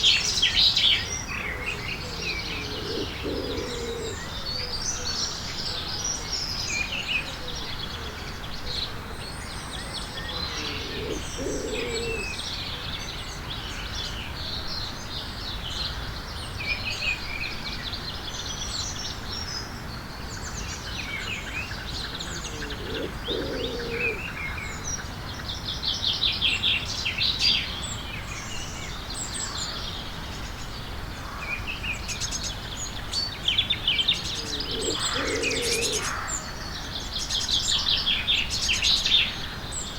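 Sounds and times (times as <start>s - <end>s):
small birds chirping: 0.0s - 4.4s, 10.0s - 12.4s, 21.6s - 24.4s, 31.8s - 39.9s
lower bird call: 1.7s - 4.3s, 10.5s - 12.4s, 22.2s - 24.3s, 34.2s - 36.4s.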